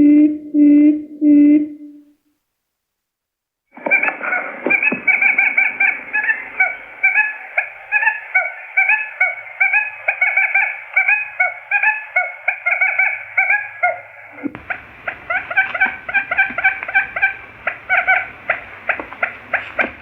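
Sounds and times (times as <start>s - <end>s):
quail lure chirped calls: 4.7s - 20.0s.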